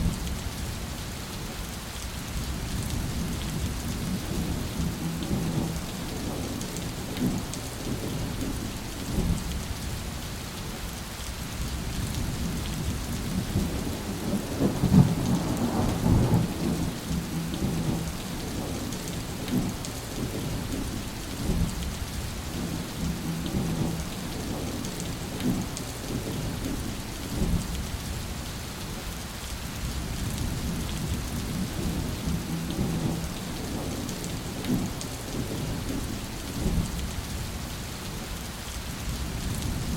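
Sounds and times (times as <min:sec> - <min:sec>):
steady rain falling: 0:00.0 - 0:39.9
rolling thunder: 0:02.6 - 0:09.5, 0:11.9 - 0:27.9, 0:30.0 - 0:37.4.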